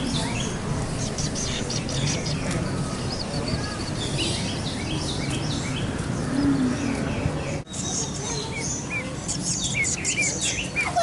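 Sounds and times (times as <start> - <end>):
birds chirping: 0.0 - 11.0
steady background murmur: 0.0 - 11.0.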